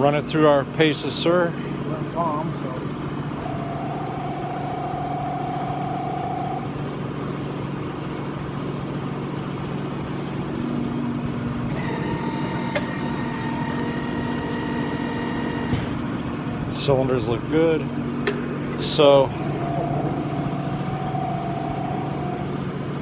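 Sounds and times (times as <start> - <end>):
hydraulic press humming: 1.7 - 7.8, 9.2 - 23.0
steady tones: 1.8 - 6.9, 18.8 - 23.0
high whine: 3.4 - 7.2, 18.8 - 23.0.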